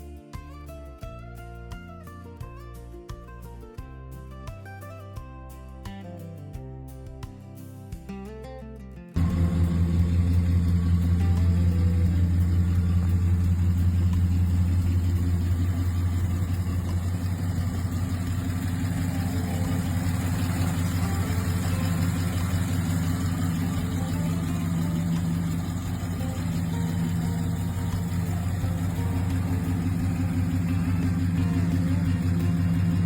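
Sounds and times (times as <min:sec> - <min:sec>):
car engine idling: 0:09.2 - 0:33.0.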